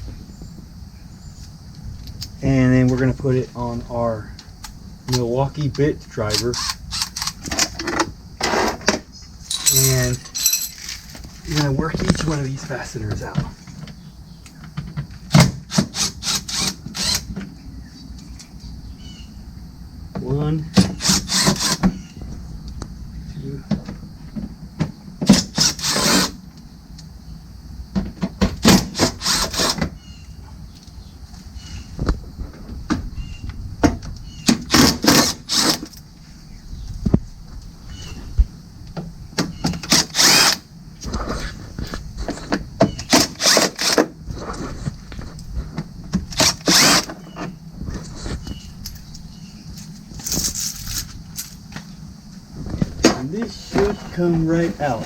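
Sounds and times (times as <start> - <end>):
cordless bit driver running: 16.0 - 17.3, 25.6 - 26.4, 39.9 - 40.6, 46.4 - 47.1.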